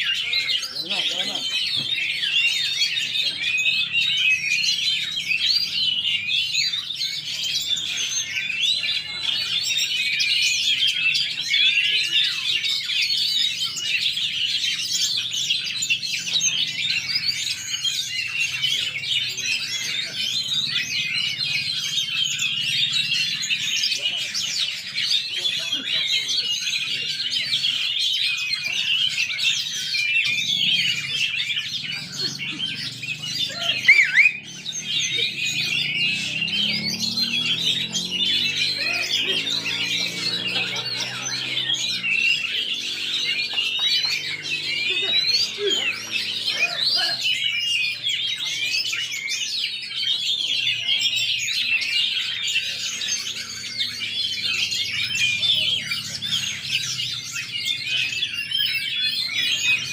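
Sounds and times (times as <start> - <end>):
many songbirds singing: 0.0 - 59.9
loud rising bird call: 30.2 - 47.9.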